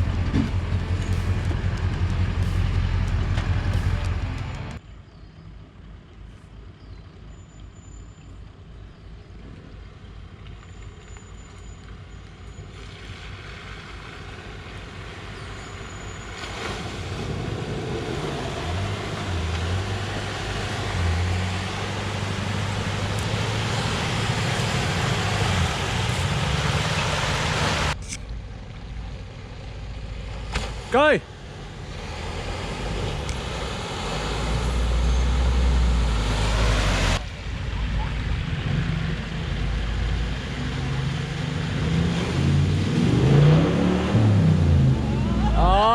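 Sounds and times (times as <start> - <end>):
engine revving: 0.0 - 4.8, 16.3 - 28.2, 30.2 - 45.9
vehicle driving: 0.0 - 4.8, 8.4 - 45.9.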